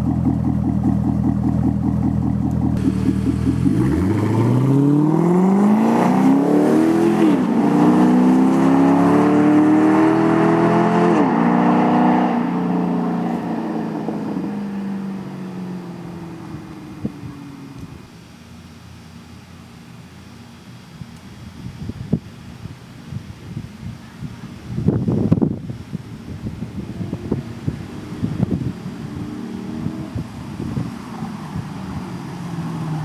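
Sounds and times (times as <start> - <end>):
car engine revving through gears: 1.3 - 14.4, 27.0 - 30.3.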